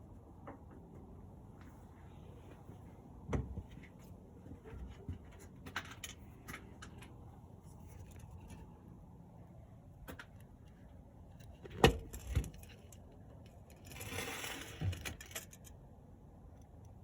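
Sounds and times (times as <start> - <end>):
metal parts clicking and tapping: 14.9 - 15.8.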